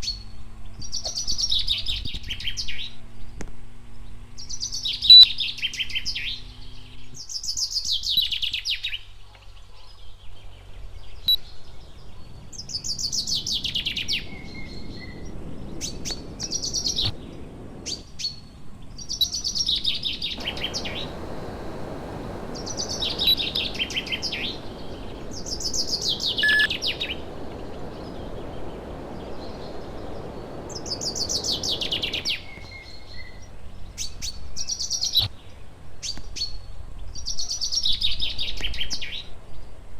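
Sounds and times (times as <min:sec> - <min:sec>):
steady rushing noise: 0:11.8 - 0:34.0
songbird trilling: 0:19.2 - 0:33.3.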